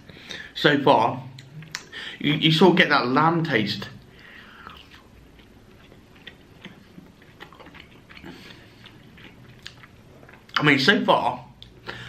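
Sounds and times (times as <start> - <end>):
man chewing: 1.4 - 2.0, 4.1 - 10.6.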